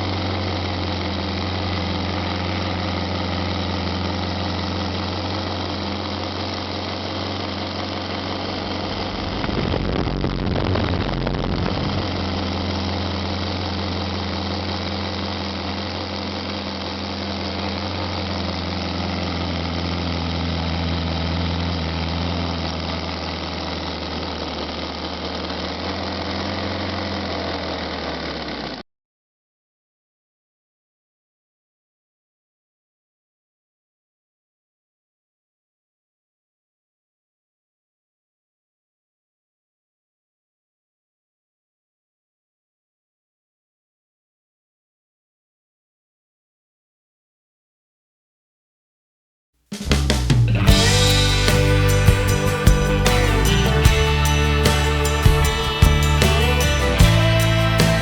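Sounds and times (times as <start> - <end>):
radial engine running: 0.0 - 28.2, 50.6 - 58.0.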